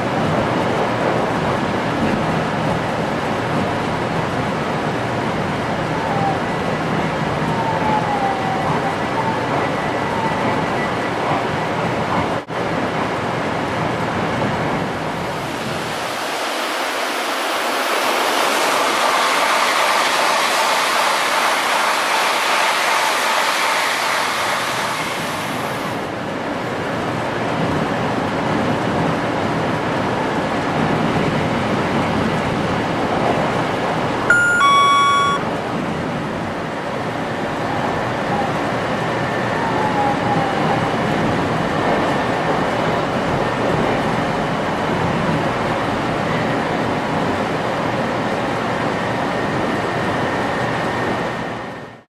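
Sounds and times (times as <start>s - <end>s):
train running at speed: 0.0s - 52.0s
passing train hissy rush: 14.5s - 27.2s
short electronic beep: 34.3s - 35.5s.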